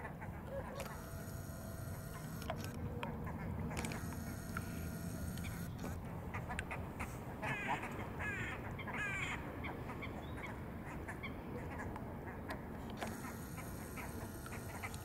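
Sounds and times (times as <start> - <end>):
steady low background noise: 0.0 - 15.0
bird caw-like call: 7.4 - 9.4.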